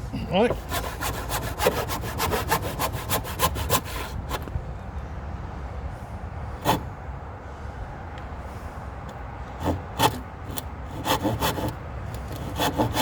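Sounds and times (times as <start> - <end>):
hand saw cutting wood: 0.4 - 4.4, 6.6 - 6.9, 9.6 - 13.0.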